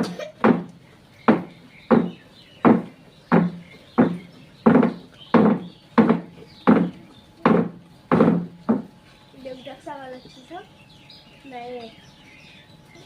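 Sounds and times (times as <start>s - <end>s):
heavy ringing knocks: 1.3s - 9.0s.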